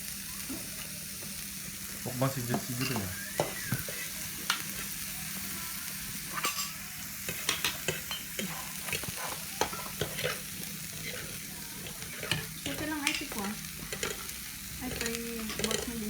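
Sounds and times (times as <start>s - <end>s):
utensils clinking on dishes: 2.4s - 5.0s, 6.2s - 16.0s.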